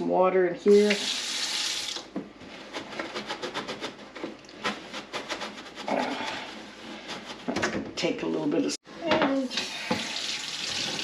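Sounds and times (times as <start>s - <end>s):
sponge scrubbing plastic: 2.5s - 7.6s
tap water running into plastic: 9.5s - 11.0s.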